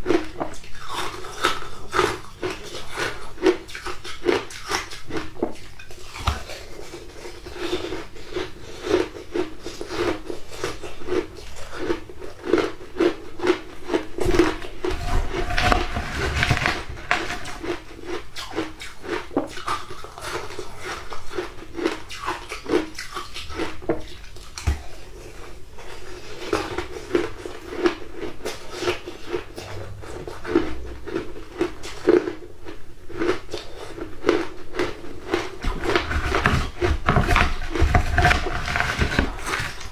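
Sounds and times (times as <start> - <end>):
ice being crunched: 14.2 - 17.8.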